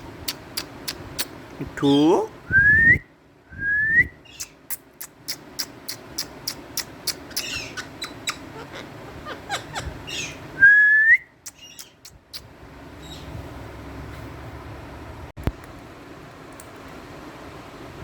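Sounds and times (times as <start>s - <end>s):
parrot chirps: 4.2s - 10.5s, 11.3s - 13.3s
parrot whistle rising: 7.1s - 11.9s.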